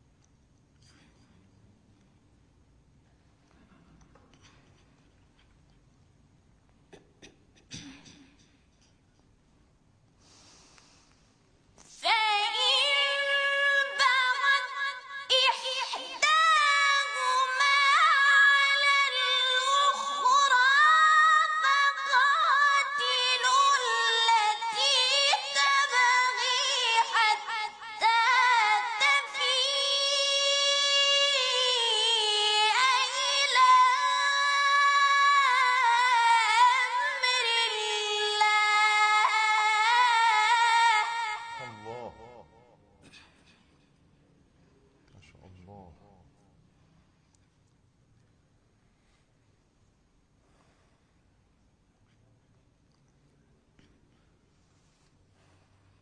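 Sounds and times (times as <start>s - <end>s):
high voice reciting melodically: 40.2s - 42.7s.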